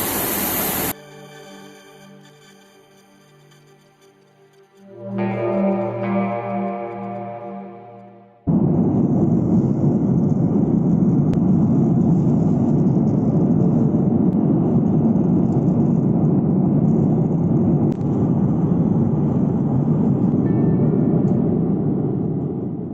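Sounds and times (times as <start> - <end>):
airliner cabin rumble: 0.0 - 0.9, 8.5 - 22.9.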